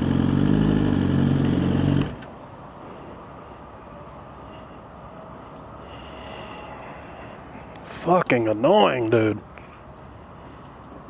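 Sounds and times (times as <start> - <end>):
motorcycle engine idling: 0.0 - 2.2.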